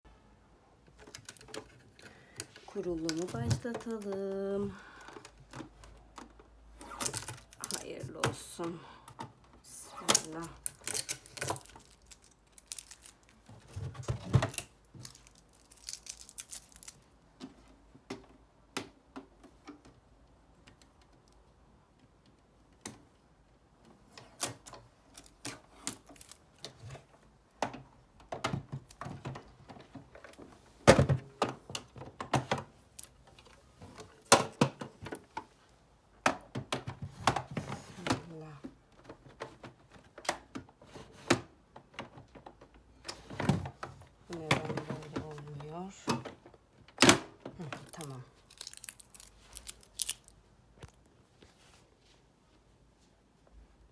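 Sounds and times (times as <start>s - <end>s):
sewing machine being handled: 10.0s - 17.1s.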